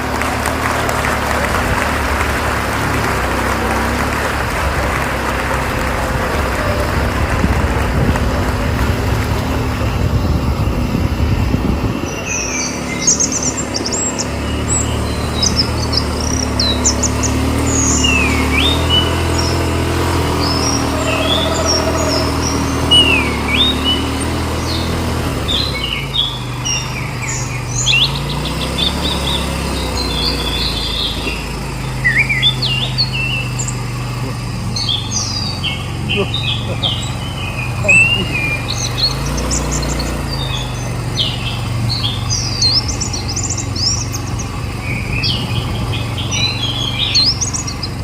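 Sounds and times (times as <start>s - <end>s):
atv engine running: 0.0s - 48.0s
birds chirping: 0.0s - 48.0s.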